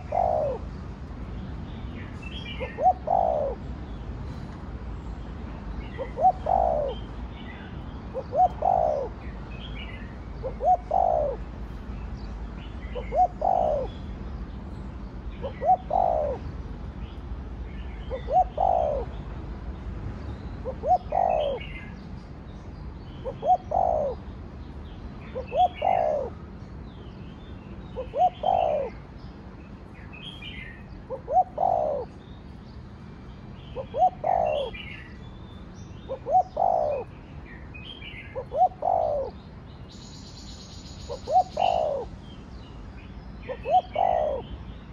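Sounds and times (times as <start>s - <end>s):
dove cooing: 0.0s - 0.7s, 2.4s - 3.7s, 5.9s - 7.1s, 8.1s - 9.3s, 10.4s - 11.5s, 12.9s - 14.1s, 15.4s - 16.5s, 18.1s - 19.2s, 20.6s - 21.9s, 23.2s - 24.2s, 25.3s - 26.4s, 28.0s - 29.0s, 31.1s - 32.2s, 33.8s - 35.1s, 36.1s - 37.1s, 38.3s - 39.4s, 41.1s - 42.2s, 43.4s - 44.5s
small birds chirping: 0.0s - 44.9s.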